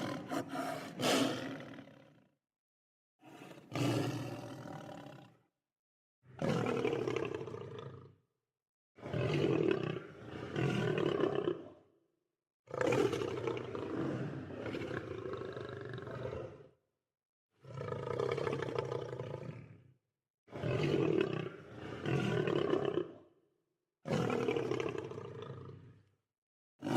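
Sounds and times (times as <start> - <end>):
lion roaring: 0.0 - 2.2, 3.2 - 5.4.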